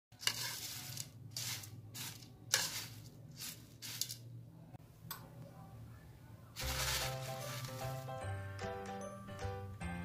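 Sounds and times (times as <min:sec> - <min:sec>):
spoon stirring puffed rice: 0:00.1 - 0:04.3, 0:06.6 - 0:08.1.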